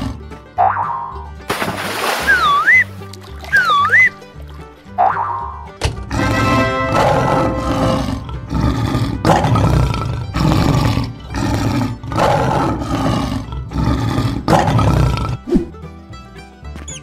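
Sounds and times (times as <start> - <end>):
lion roaring: 0.0 - 0.2, 6.0 - 15.5
background music: 0.0 - 17.0.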